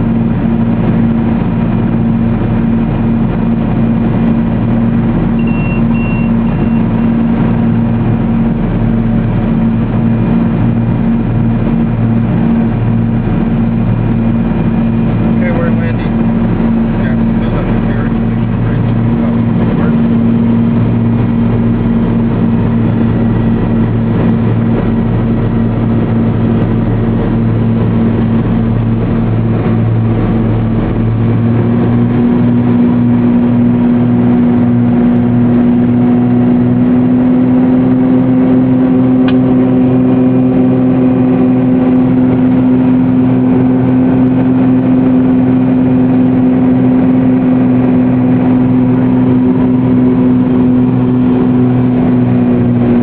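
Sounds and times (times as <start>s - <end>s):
aircraft engines droning in cabin: 0.0s - 53.0s.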